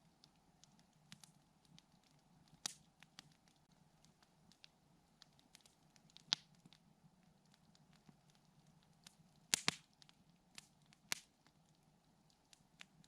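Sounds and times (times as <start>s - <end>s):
campfire crackling: 0.0s - 13.0s
sharp fire pops: 2.6s - 3.3s, 9.5s - 9.9s, 10.6s - 11.3s.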